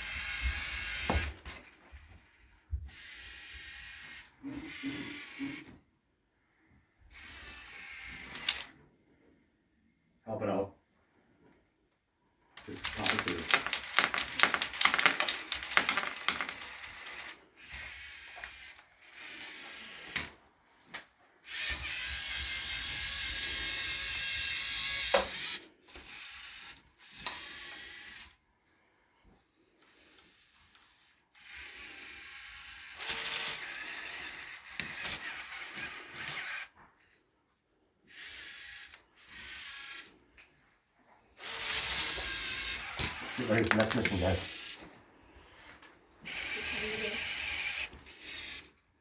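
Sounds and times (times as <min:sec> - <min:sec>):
robot electric motors and gears: 0:00.0 - 0:05.7, 0:12.6 - 0:20.4, 0:21.4 - 0:28.4, 0:29.9 - 0:36.8, 0:38.1 - 0:40.2, 0:41.4 - 0:44.8, 0:46.3 - 0:48.7.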